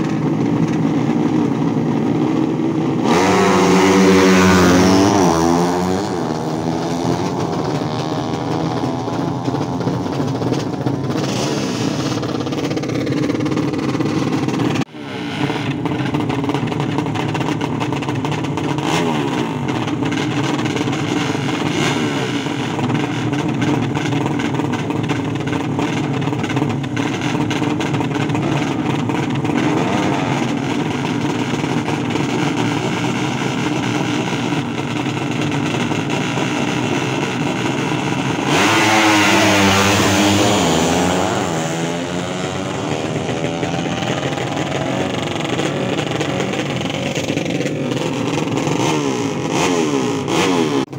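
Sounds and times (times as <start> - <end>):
racing motorcycle engines: 0.0 - 50.9.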